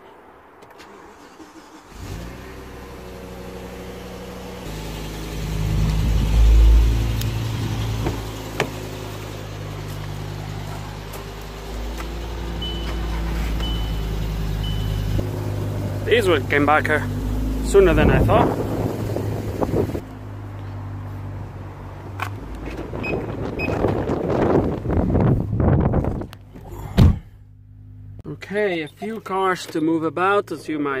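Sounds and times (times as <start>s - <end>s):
car engine starting and idling: 0.5s - 31.0s
short high beeps: 13.6s - 15.2s.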